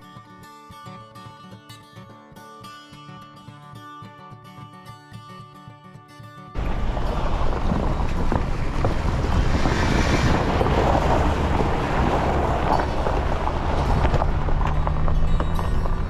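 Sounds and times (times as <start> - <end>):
wind buffeting microphone: 6.6 - 16.0.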